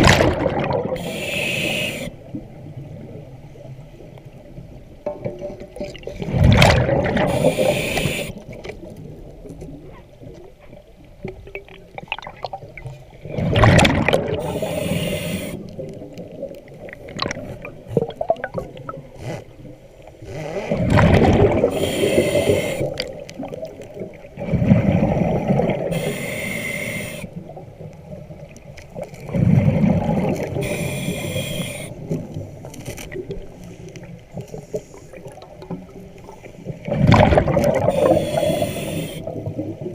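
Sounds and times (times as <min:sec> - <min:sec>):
underwater breathing bubbles: 0:00.0 - 0:02.4, 0:05.9 - 0:08.7, 0:13.2 - 0:27.7, 0:29.2 - 0:32.6, 0:33.2 - 0:39.9
regulator hiss: 0:01.0 - 0:02.2, 0:07.3 - 0:08.4, 0:14.4 - 0:15.6, 0:21.7 - 0:22.9, 0:25.9 - 0:27.3, 0:30.6 - 0:32.0, 0:38.0 - 0:39.3.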